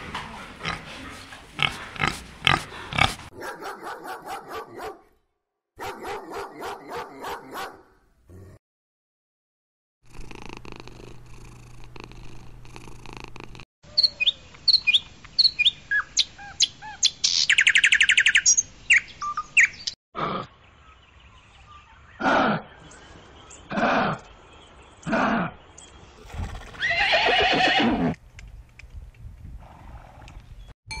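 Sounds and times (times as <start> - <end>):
bird trill: 13.9 - 20.0
birds chirping and whistling: 13.9 - 20.0.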